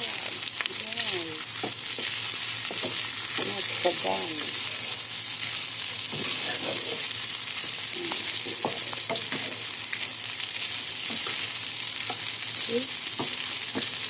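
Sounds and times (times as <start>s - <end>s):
rice sizzling in a wok: 0.0s - 14.0s
spatula scraping and tapping pan: 1.6s - 3.6s, 6.1s - 7.0s, 8.1s - 9.6s.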